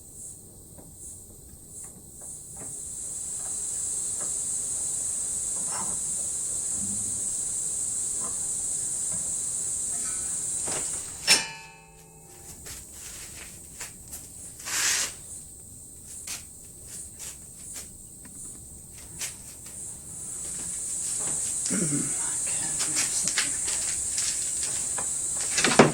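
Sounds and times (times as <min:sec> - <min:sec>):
steady high hiss: 0:00.0 - 0:25.9
hammer striking sheet steel: 0:11.2 - 0:12.6.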